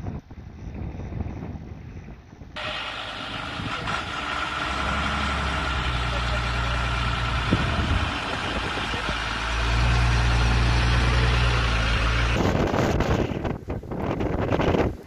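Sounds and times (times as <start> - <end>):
heavy vehicle engine humming: 2.6 - 13.5
rushing wind-like noise: 7.0 - 15.0.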